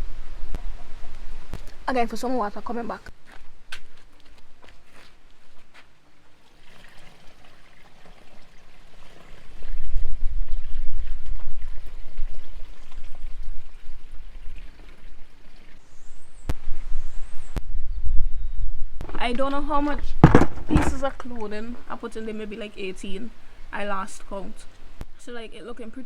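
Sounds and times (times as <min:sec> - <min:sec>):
water poured from bucket: 0:06.4 - 0:15.8.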